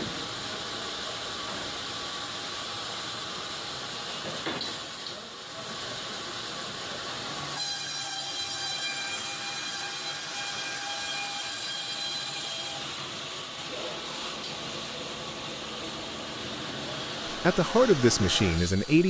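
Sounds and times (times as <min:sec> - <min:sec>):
bandsaw mill hissing: 0:16.9 - 0:19.0
high whine: 0:17.2 - 0:19.0.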